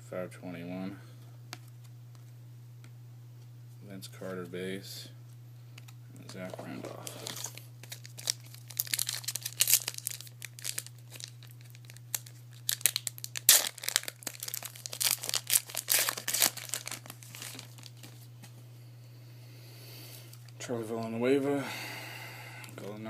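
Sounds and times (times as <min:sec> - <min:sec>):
wrapper crinkling and tearing: 0:06.5 - 0:18.2.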